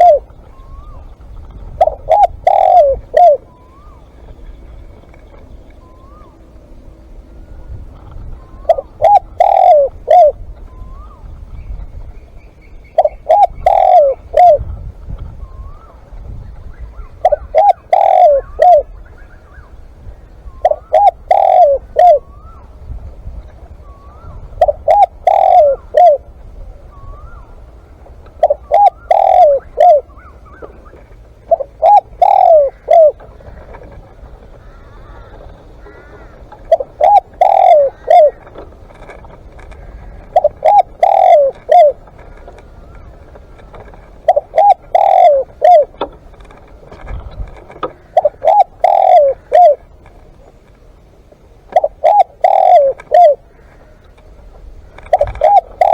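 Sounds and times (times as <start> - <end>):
dove cooing: 0.0 - 55.9
small birds chirping: 8.4 - 14.6.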